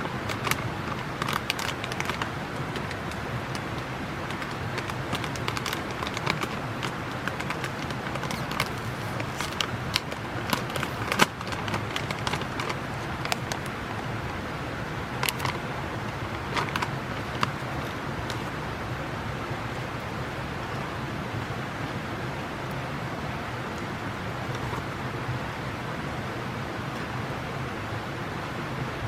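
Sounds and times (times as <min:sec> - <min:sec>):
campfire crackling and popping: 0:00.0 - 0:18.7
low background rumble: 0:00.0 - 0:29.0.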